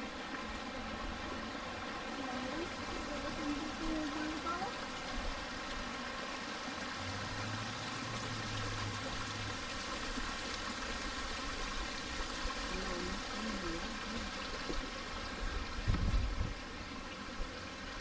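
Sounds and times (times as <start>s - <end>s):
creek trickling over rocks: 0.0s - 18.0s.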